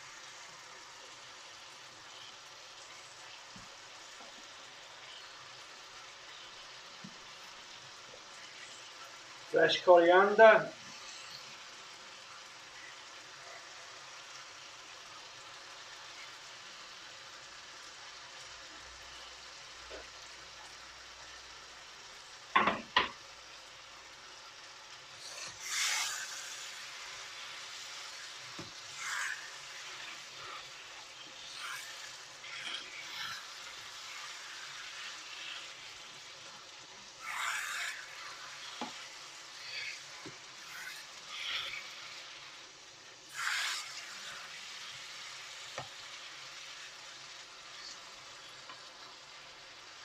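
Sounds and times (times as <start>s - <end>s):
curry sizzling in a pan: 0.0s - 50.0s
utensil scraping a pan: 25.2s - 26.8s, 28.4s - 35.7s, 37.2s - 42.1s, 43.3s - 44.4s.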